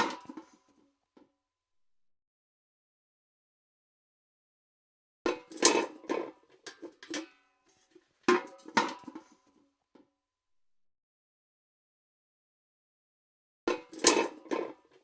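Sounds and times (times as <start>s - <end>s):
steel bucket clanking: 5.3s - 7.4s, 13.7s - 14.8s.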